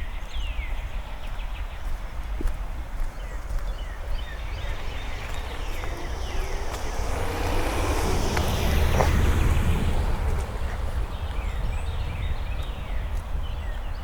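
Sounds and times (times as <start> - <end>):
small birds chirping: 0.0 - 14.0
vehicle driving past: 3.1 - 13.6.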